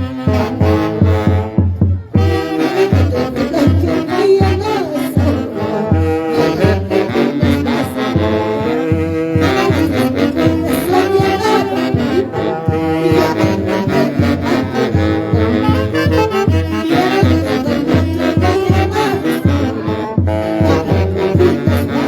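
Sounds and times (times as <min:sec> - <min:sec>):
dance band with horns: 0:00.0 - 0:22.0
steady bass beat: 0:14.6 - 0:17.1.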